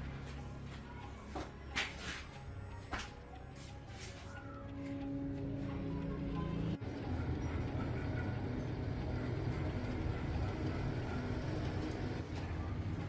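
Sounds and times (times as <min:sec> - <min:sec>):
low mechanical rumble: 0:04.4 - 0:13.0.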